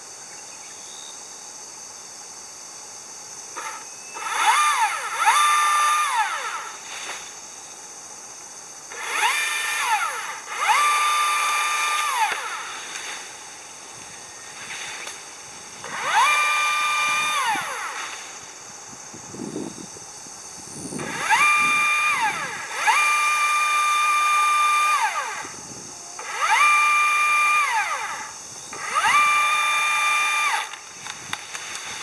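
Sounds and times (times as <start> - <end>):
chainsaw revving and idling: 3.6 - 7.4, 8.8 - 18.7, 20.9 - 32.0.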